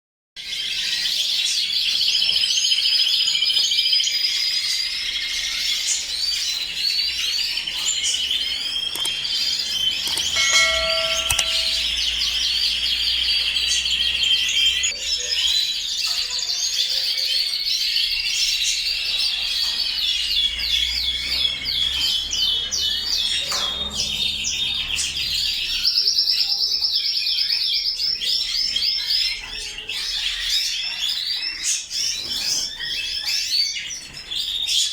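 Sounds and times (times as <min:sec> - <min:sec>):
canaries singing and chirping: 0:00.4 - 0:34.9.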